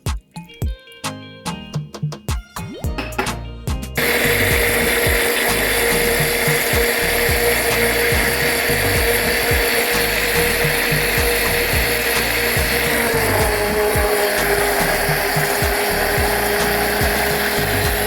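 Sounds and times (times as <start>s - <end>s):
blender running at high speed: 4.0s - 18.0s.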